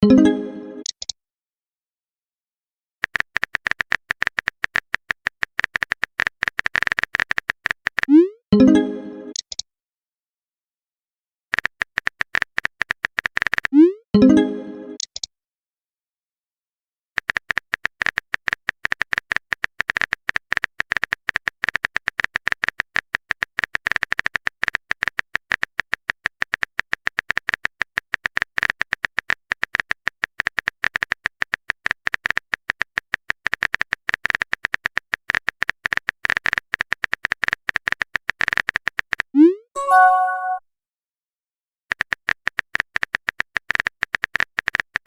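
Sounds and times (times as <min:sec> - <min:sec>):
phone keyboard typing clicks: 0:03.0 - 0:08.1, 0:11.5 - 0:13.7, 0:17.2 - 0:40.6, 0:41.9 - 0:45.0.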